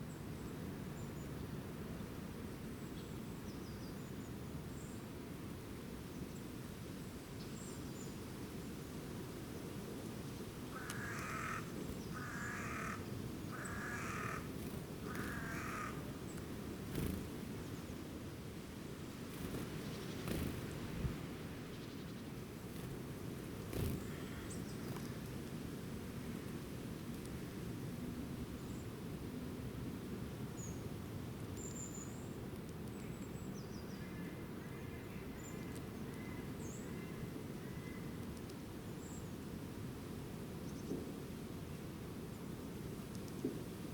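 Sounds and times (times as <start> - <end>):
low background hiss: 0.0 - 43.9
bird calling: 10.8 - 14.5, 15.1 - 16.1.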